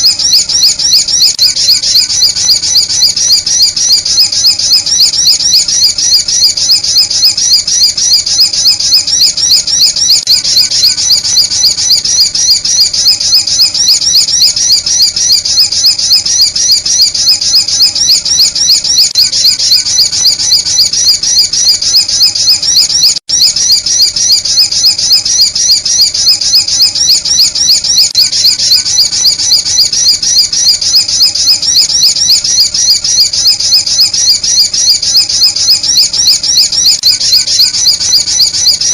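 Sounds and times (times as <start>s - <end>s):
high thin bird chirps: 0.0s - 38.9s.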